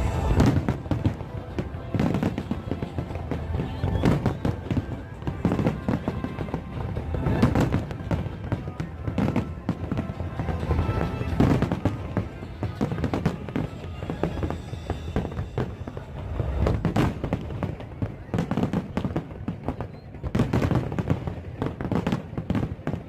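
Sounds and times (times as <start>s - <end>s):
music playing: 0.0s - 17.8s
fireworks bursting and crackling: 0.0s - 23.0s.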